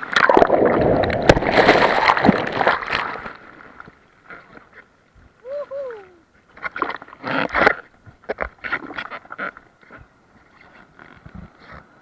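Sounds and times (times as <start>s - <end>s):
water splashing and sloshing: 0.0s - 5.0s, 6.5s - 10.6s.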